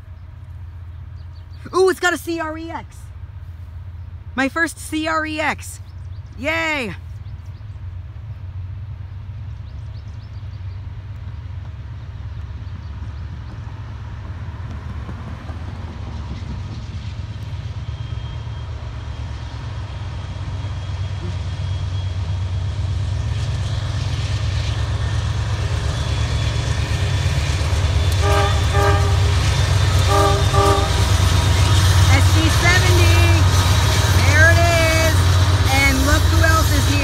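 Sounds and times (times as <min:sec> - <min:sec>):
diesel locomotive rumble: 0:00.0 - 0:37.0
locomotive air horn blasts: 0:28.1 - 0:31.4.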